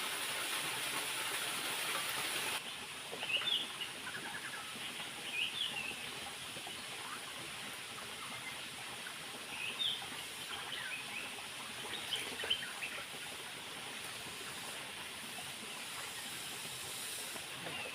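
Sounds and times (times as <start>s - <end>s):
waterfall rushing: 0.0s - 2.6s.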